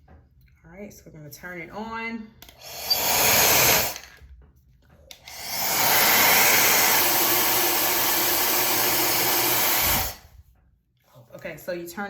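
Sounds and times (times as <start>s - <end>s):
hair dryer blowing: 2.5s - 4.1s, 5.1s - 10.3s.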